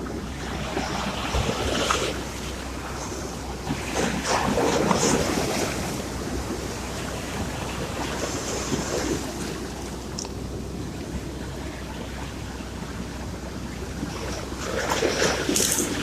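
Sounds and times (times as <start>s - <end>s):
sea waves washing in: 0.0s - 16.0s.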